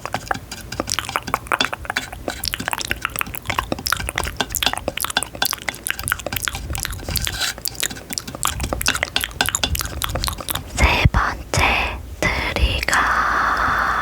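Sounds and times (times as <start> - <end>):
small wet clicks and crackles: 0.0 - 11.0.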